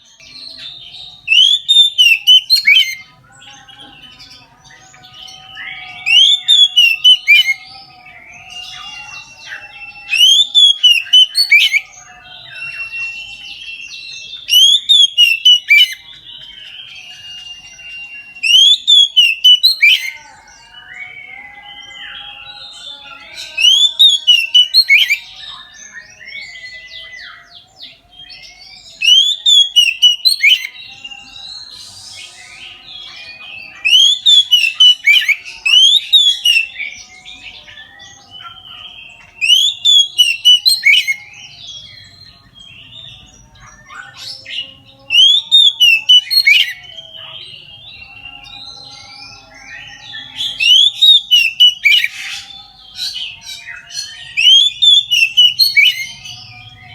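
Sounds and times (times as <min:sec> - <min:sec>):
bird singing whistled phrases: 0:00.0 - 0:56.9
bird chattering: 0:33.8 - 0:36.8.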